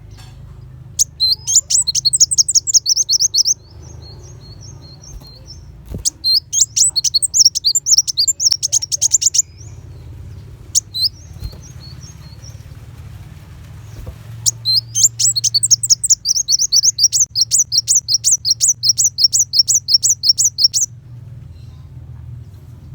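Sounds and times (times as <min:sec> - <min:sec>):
faint low hum: 0:00.0 - 0:22.9
sunbird singing rapid notes: 0:00.8 - 0:13.0, 0:13.8 - 0:21.0.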